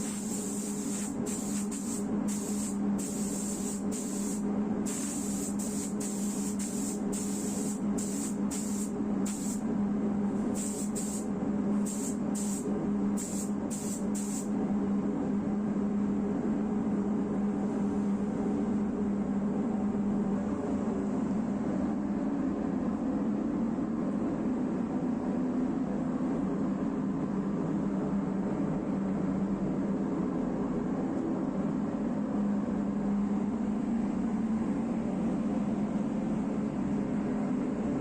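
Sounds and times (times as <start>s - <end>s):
spray gun hissing in bursts: 0.0s - 9.6s, 10.6s - 14.5s
low machinery hum: 0.0s - 38.0s.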